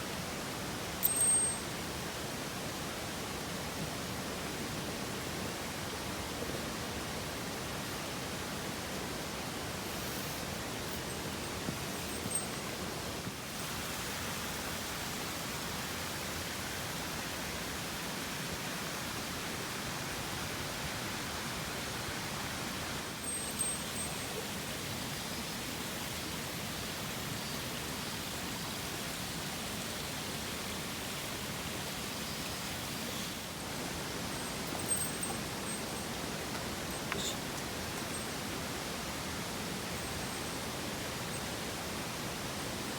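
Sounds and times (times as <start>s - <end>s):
stream rushing: 0.0s - 42.9s
faint high-pitched chirp: 1.0s - 1.8s, 10.9s - 12.8s, 23.1s - 24.4s, 34.3s - 38.4s.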